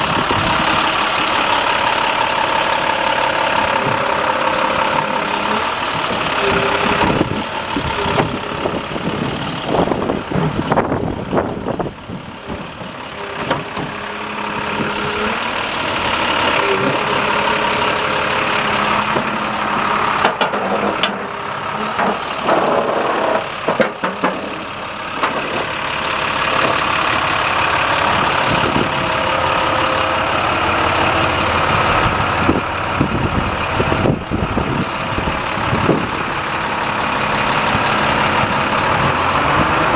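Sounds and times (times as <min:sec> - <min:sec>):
diesel truck engine running: 0:00.0 - 0:39.9
clanks and knocks: 0:12.5 - 0:15.1, 0:18.9 - 0:25.8.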